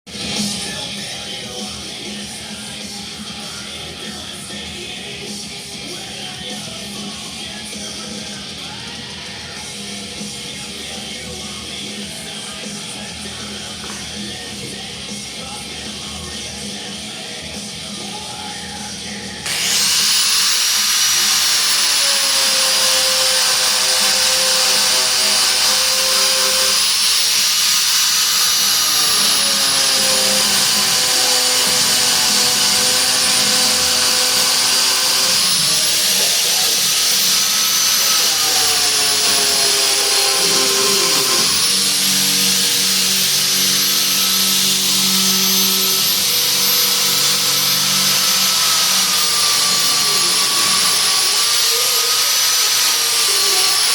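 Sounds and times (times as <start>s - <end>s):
power tool whining on rubber: 19.4s - 53.9s.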